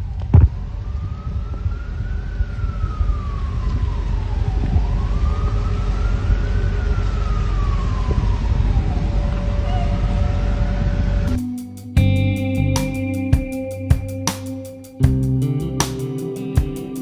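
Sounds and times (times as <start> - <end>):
steady low rumble: 11.2 - 17.0.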